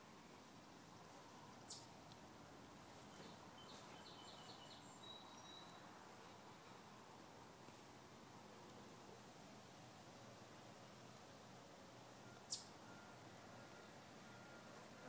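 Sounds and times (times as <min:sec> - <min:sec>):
faint background hiss: 0:00.0 - 0:15.0
high bird chirps: 0:01.6 - 0:01.9, 0:12.4 - 0:12.7.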